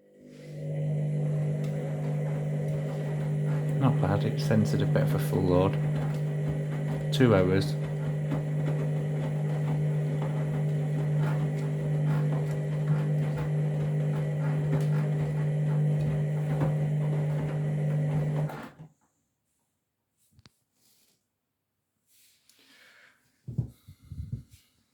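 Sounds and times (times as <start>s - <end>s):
washing machine humming: 0.0s - 18.8s.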